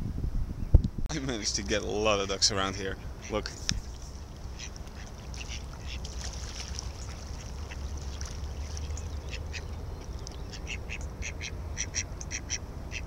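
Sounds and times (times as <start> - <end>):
wind rumbling on microphone: 0.0 - 13.0
ducks quacking: 3.2 - 13.0.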